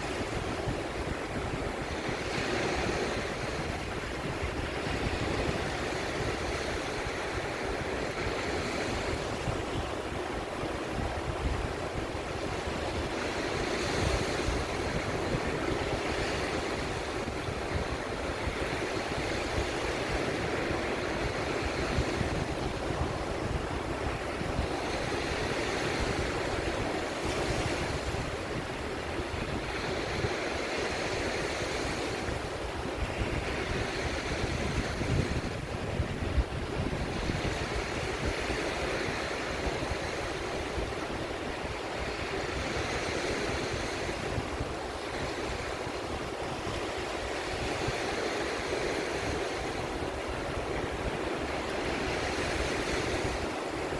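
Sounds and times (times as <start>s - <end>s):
sea waves washing in: 0.0s - 53.9s
wind rumbling on microphone: 0.0s - 53.9s.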